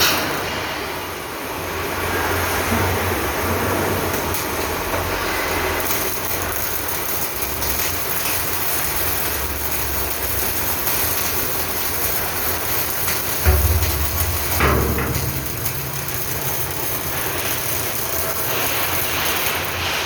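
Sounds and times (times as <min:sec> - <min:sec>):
low mechanical hum: 0:12.6 - 0:20.0.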